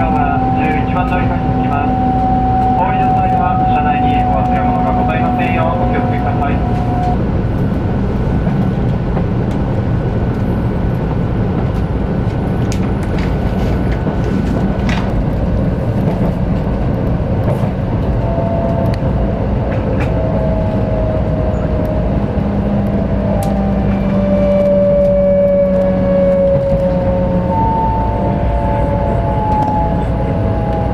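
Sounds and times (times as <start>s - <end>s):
faint whining tones: 0.0s - 7.2s, 18.1s - 30.9s
low hum: 0.0s - 30.9s
train running rumble: 0.0s - 30.9s.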